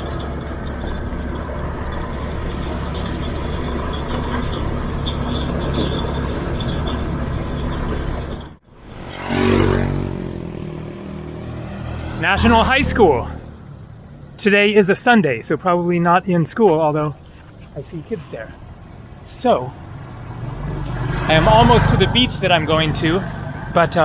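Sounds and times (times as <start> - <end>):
motorbike engine running: 0.0 - 11.4
vehicle passing by: 0.0 - 14.4, 17.1 - 24.0
wind and road noise: 0.0 - 24.0.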